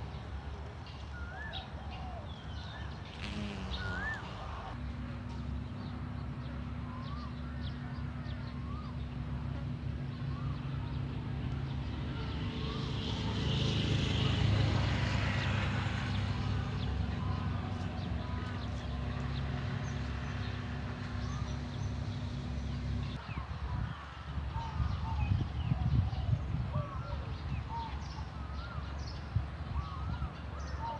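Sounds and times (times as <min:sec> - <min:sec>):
small birds chirping: 0:02.3 - 0:04.8
engine passing by: 0:03.0 - 0:05.0, 0:10.3 - 0:23.2
steady low motor hum: 0:03.1 - 0:12.1, 0:16.6 - 0:23.2.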